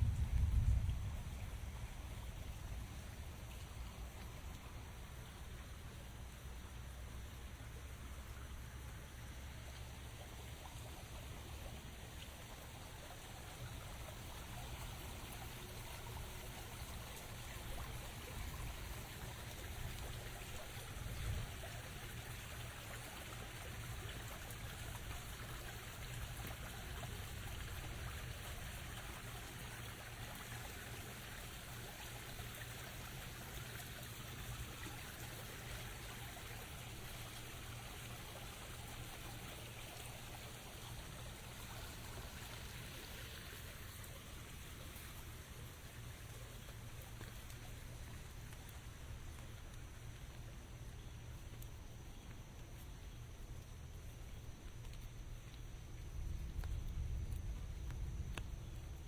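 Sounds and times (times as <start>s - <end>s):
rain falling: 0.0s - 59.0s
water trickling: 0.0s - 59.0s.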